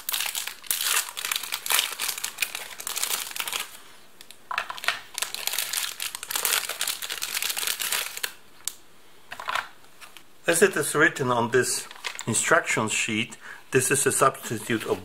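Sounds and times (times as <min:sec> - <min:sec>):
plastic packaging crinkling: 0:00.0 - 0:08.4, 0:11.8 - 0:12.3.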